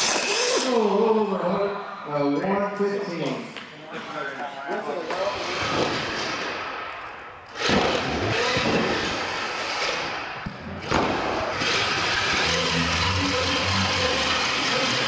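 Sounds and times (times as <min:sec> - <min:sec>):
toy truck electric motors whining: 0:00.0 - 0:01.0, 0:07.5 - 0:15.0.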